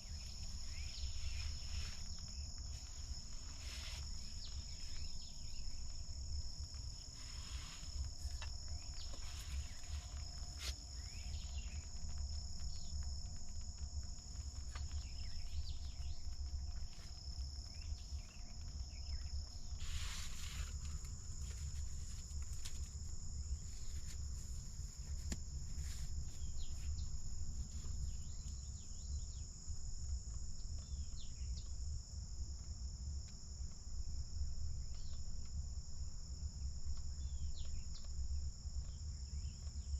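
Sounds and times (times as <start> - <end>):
rustle: 0.0 - 31.8
insects trilling: 0.0 - 39.9.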